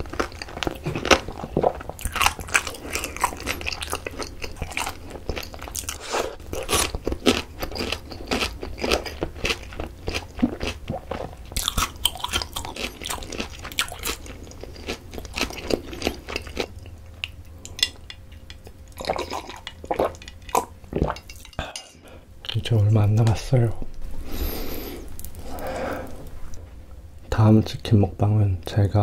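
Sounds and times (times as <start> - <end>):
wet chewing clicks: 0.0 - 6.0.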